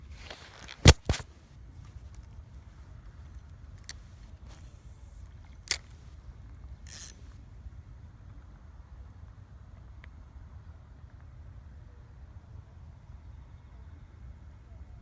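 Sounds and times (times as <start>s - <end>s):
sharp clicks: 0.6s - 1.3s
brief hiss: 3.9s - 6.2s.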